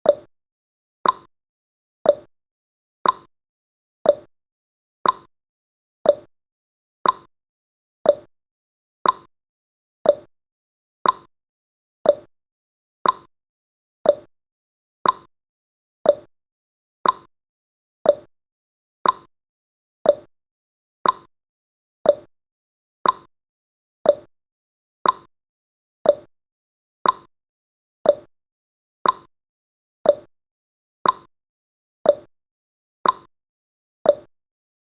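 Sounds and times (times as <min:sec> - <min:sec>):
timer ticking: 0:00.0 - 0:00.3, 0:01.0 - 0:01.3, 0:02.0 - 0:02.3, 0:03.0 - 0:03.3, 0:04.0 - 0:04.3, 0:05.0 - 0:05.3, 0:06.0 - 0:06.3, 0:07.0 - 0:07.3, 0:08.0 - 0:08.3, 0:09.0 - 0:09.3, 0:10.0 - 0:10.3, 0:11.0 - 0:11.3, 0:12.0 - 0:12.3, 0:13.0 - 0:13.3, 0:14.0 - 0:14.3, 0:15.0 - 0:15.3, 0:16.0 - 0:16.3, 0:17.0 - 0:17.3, 0:18.0 - 0:18.3, 0:19.0 - 0:19.3, 0:20.0 - 0:20.3, 0:21.0 - 0:21.3, 0:22.0 - 0:22.3, 0:23.0 - 0:23.3, 0:24.0 - 0:24.3, 0:25.0 - 0:25.3, 0:26.0 - 0:26.3, 0:27.0 - 0:27.3, 0:28.0 - 0:28.3, 0:29.0 - 0:29.3, 0:30.0 - 0:30.3, 0:31.0 - 0:31.3, 0:32.0 - 0:32.3, 0:33.0 - 0:33.3, 0:34.1 - 0:34.3.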